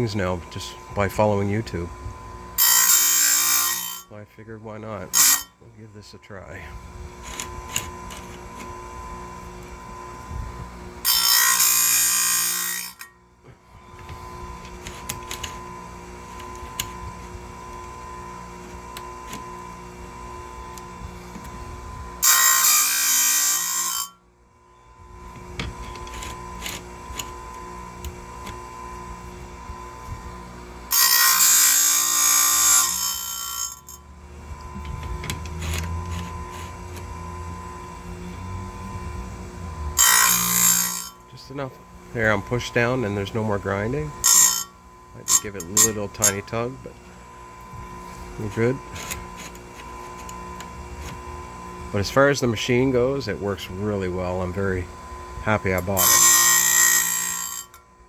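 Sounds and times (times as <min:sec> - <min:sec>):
grinding wheel humming: 0:00.0 - 0:58.0
wheel rasping against chain tooth: 0:02.6 - 0:04.1, 0:05.0 - 0:05.6, 0:11.0 - 0:13.2, 0:30.9 - 0:34.1, 0:34.8 - 0:37.3, 0:39.7 - 0:41.3, 0:42.2 - 0:46.7, 0:55.5 - 0:57.8.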